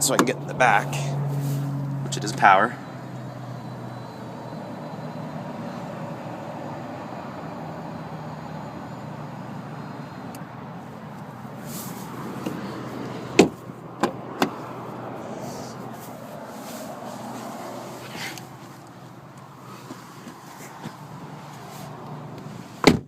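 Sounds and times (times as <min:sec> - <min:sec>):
sharp knocks and clunks: 0:13.4 - 0:14.6.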